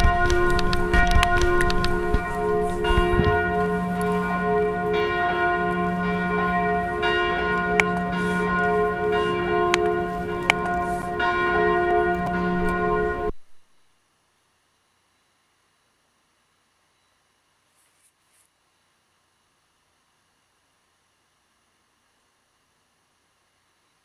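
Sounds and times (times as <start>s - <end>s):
sharp clicks: 0.0s - 13.2s
church bells ringing: 0.0s - 13.4s.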